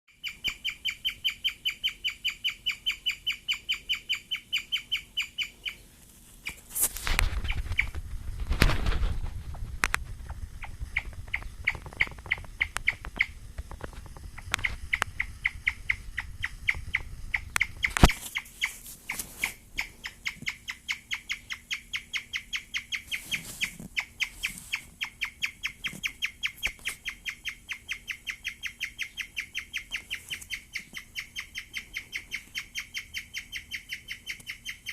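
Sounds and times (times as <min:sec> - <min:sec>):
guinea pig chirping: 0:00.1 - 0:08.0, 0:10.5 - 0:13.4, 0:14.3 - 0:34.9
rustling: 0:05.7 - 0:20.6, 0:22.9 - 0:27.1, 0:29.9 - 0:31.2.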